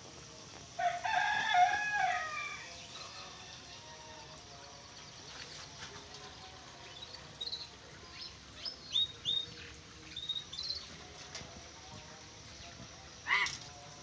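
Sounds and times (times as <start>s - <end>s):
birds chirping and whistling: 7.4s - 10.9s.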